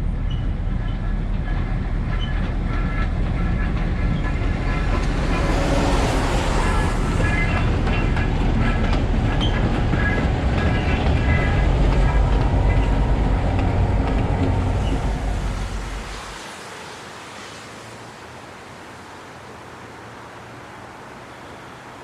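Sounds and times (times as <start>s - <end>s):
train rumbling past: 0.0s - 22.0s
high-pitched train squeaks: 0.2s - 16.4s.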